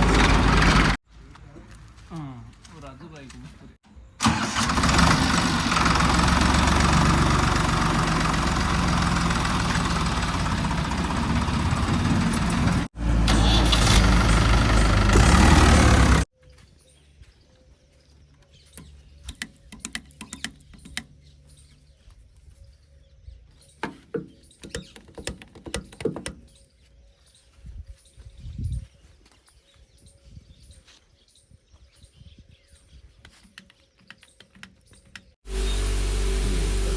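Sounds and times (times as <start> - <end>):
heavy diesel engine running: 0.0 - 1.0, 4.2 - 16.3, 35.4 - 36.9.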